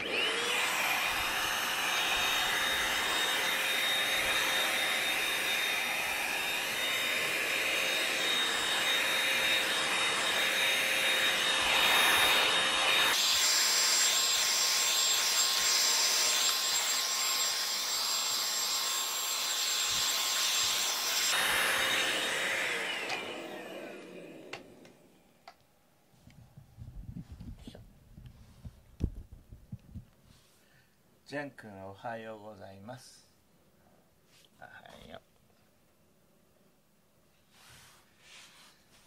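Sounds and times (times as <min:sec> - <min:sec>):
vacuum cleaner motor whine: 0:00.0 - 0:25.4.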